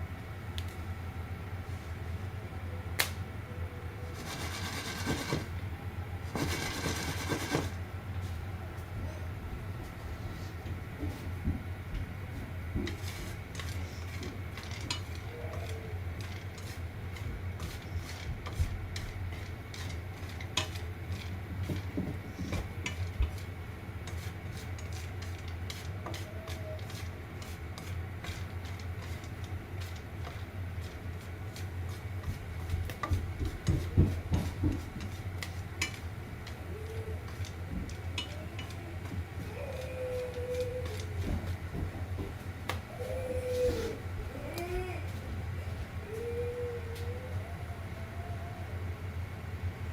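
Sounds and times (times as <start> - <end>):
steady low hum: 0.0 - 49.9
dishes and utensils clinking: 38.2 - 38.8.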